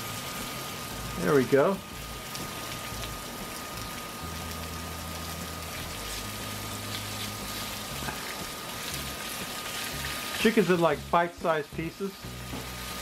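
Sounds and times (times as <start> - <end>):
chicken sizzling on a griddle: 0.0 - 13.0.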